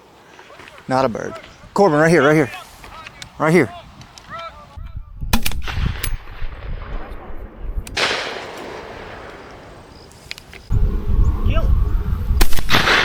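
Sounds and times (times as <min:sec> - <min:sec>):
shotgun shots: 0:05.3 - 0:07.3, 0:07.9 - 0:09.5, 0:12.4 - 0:13.0
rush of noise: 0:10.7 - 0:12.9.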